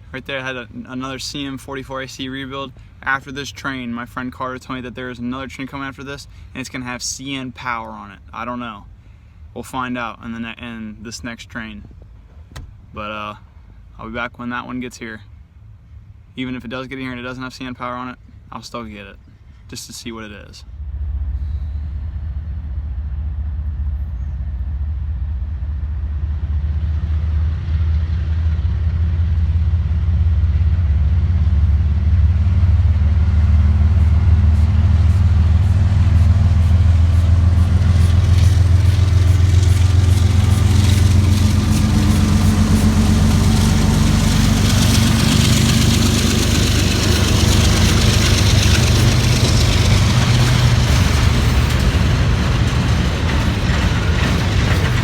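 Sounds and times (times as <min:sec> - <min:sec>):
diesel locomotive engines droning: 0:00.0 - 0:10.8, 0:15.2 - 0:55.0
wheel-on-rail hiss: 0:33.9 - 0:55.0
regular rail clicks: 0:35.0 - 0:55.0.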